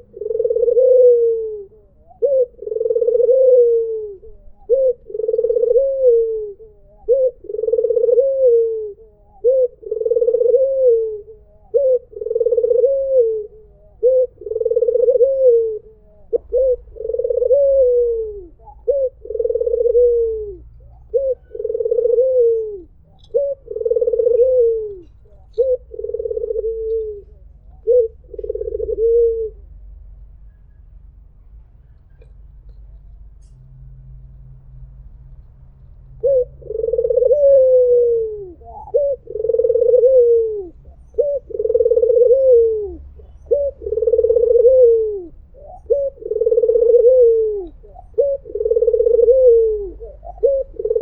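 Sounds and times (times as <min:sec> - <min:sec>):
dove cooing: 0:00.0 - 0:30.0, 0:36.0 - 0:51.0.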